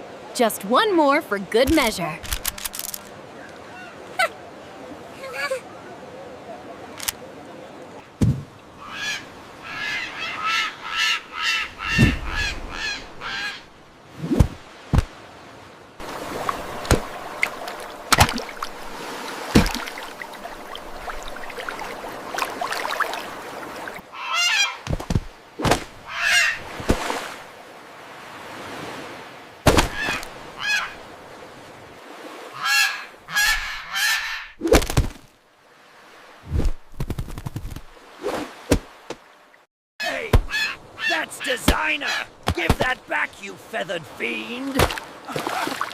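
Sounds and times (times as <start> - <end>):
seagull squawking: 8.8 - 13.7, 24.1 - 24.8, 26.1 - 26.6, 29.9 - 31.0, 40.5 - 42.4.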